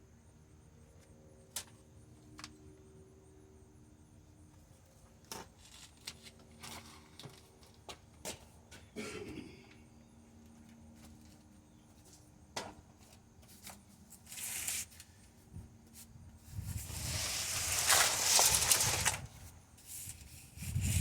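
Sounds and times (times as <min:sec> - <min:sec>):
rustling scraping handling noise: 0:16.5 - 0:21.0.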